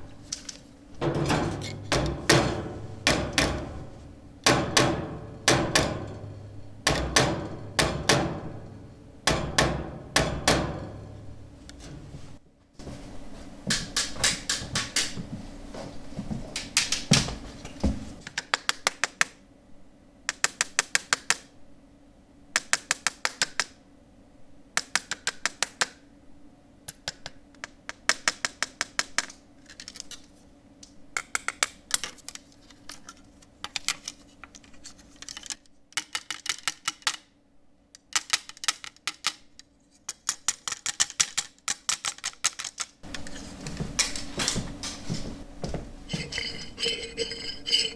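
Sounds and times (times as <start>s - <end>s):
heavy knocking: 1.0s - 12.3s.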